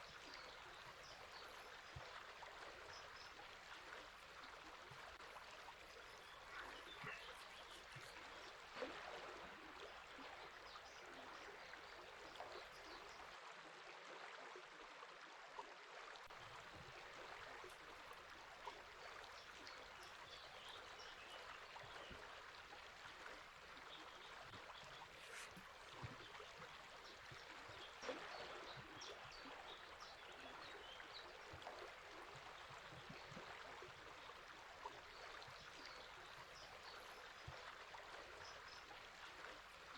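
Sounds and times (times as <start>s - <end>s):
river water flowing: 0.0s - 14.3s, 15.1s - 39.9s
faint bird calls: 4.9s - 13.1s, 23.3s - 33.5s.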